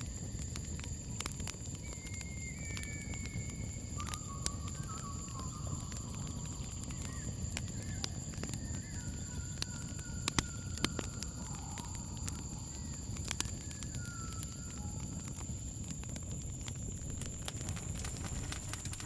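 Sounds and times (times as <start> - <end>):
campfire crackling: 0.0 - 19.0
crickets chirping: 0.0 - 19.0
faint wavering animal calls: 1.7 - 16.1.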